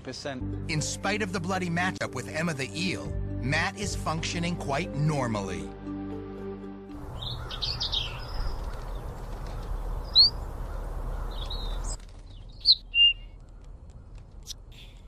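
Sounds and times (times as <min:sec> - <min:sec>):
birds chirping: 0:06.9 - 0:15.0
outdoor background hiss: 0:06.9 - 0:15.0.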